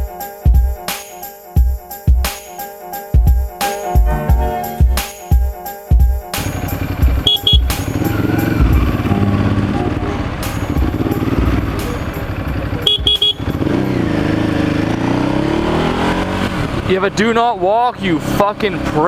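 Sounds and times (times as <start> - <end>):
motorcycle engine revving: 6.4 - 19.0
short high-pitched beeps: 7.3 - 7.8, 12.9 - 13.4.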